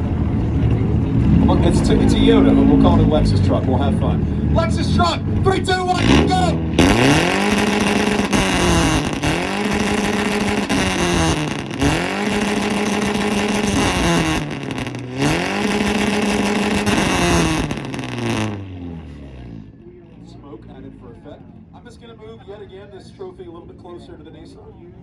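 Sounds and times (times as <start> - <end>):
engine revving against limiter: 0.0 - 19.8
exhaust crackling: 0.0 - 22.6.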